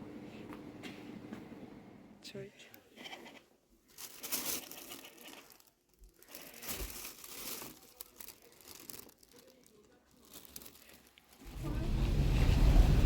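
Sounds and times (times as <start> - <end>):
crinkling and rustling: 3.0 - 13.0.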